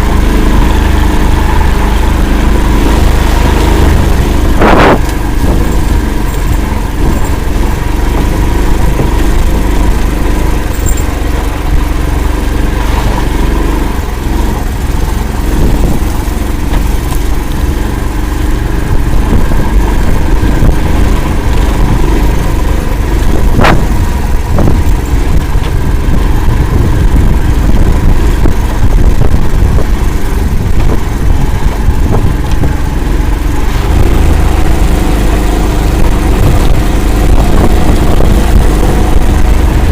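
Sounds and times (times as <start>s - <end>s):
all-terrain vehicle engine running: 0.0s - 39.9s.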